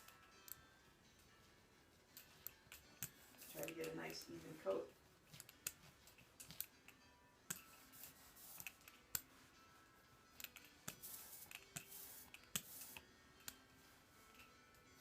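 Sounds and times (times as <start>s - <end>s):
brayer rolling sticky ink: 1.9s - 9.5s, 10.3s - 14.5s.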